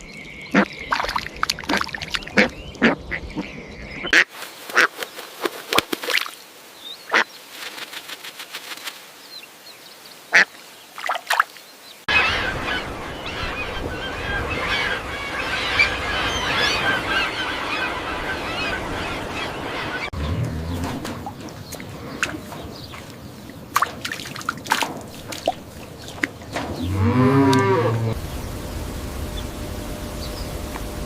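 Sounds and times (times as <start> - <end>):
chorus of birds chattering: 0.0 - 6.2, 11.3 - 28.2
waterfowl honking: 1.7 - 4.9, 7.1 - 7.3, 10.3 - 10.5, 12.1 - 28.2.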